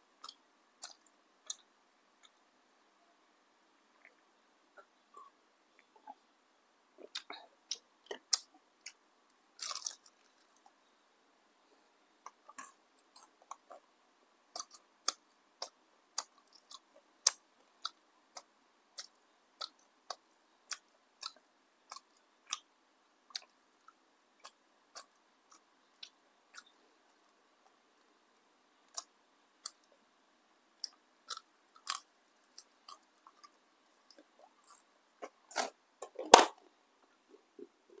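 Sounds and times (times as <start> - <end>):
crunchy chewing: 9.6 - 10.8, 12.2 - 13.9, 14.5 - 22.7, 23.3 - 27.8, 30.8 - 36.3.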